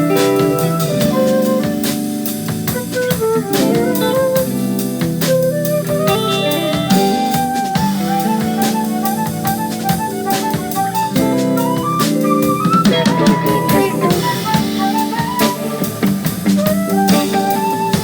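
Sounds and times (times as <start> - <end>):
drum kit playing: 0.0 - 18.0
quick melodic line: 5.6 - 18.0.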